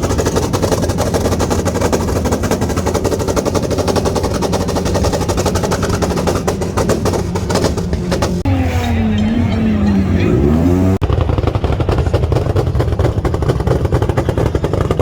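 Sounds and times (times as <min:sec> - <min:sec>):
rapid sharp cracks: 0:00.0 - 0:08.4.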